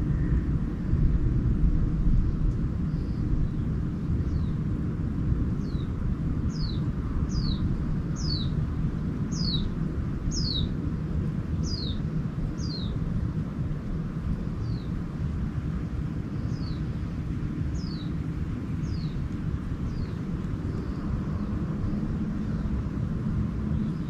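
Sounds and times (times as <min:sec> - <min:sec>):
low rumble: 0:00.0 - 0:24.0
songbird call: 0:06.5 - 0:08.6, 0:09.3 - 0:09.7, 0:10.3 - 0:10.7, 0:11.6 - 0:12.0, 0:12.6 - 0:13.0, 0:16.4 - 0:16.9, 0:17.7 - 0:18.2, 0:18.8 - 0:21.6.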